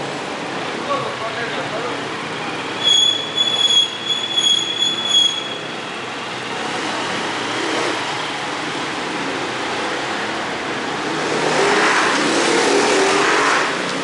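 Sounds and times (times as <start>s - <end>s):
traffic noise: 0.0s - 14.0s
high vehicle squeal: 2.5s - 6.0s.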